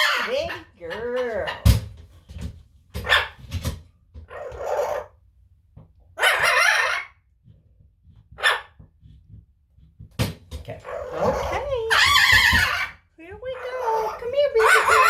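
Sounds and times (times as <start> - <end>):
parrot squawking: 0.0 - 1.8, 6.2 - 7.2, 10.8 - 15.0.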